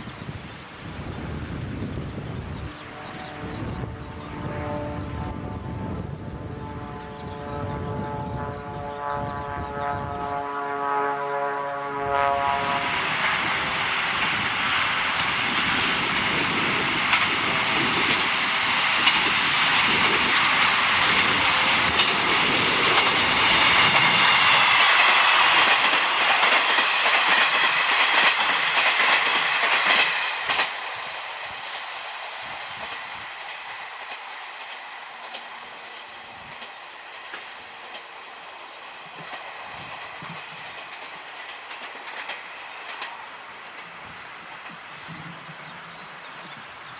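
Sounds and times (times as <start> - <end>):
train passing rumble: 0.0 - 46.9
wheels clicking over rail joints: 13.6 - 31.0, 39.0 - 46.9.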